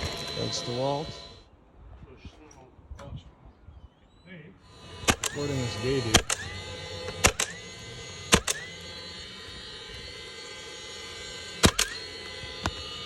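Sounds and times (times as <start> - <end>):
nail gun firing: 4.8 - 7.7, 8.3 - 8.7, 11.6 - 12.9.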